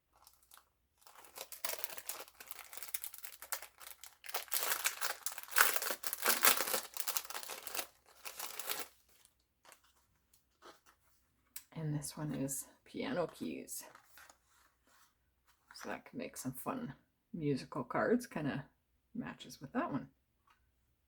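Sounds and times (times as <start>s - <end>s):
packaging crinkling and tearing: 0.1s - 9.9s.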